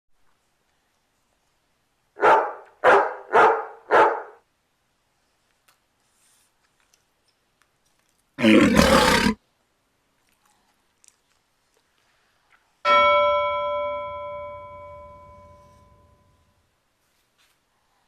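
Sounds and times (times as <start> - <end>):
loud roar: 8.4 - 9.4
bell strike ringing: 12.9 - 16.3.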